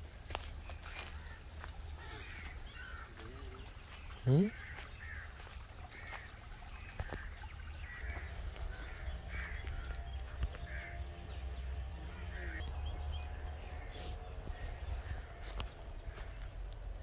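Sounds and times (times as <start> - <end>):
bird calling: 0.0 - 17.0
low rumble: 8.3 - 17.0.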